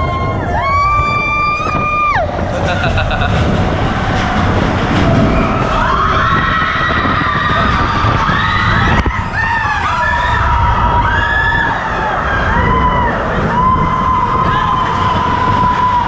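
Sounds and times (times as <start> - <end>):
roller coaster rumbling on track: 0.0 - 16.0
riders shouting and screaming: 3.6 - 16.0.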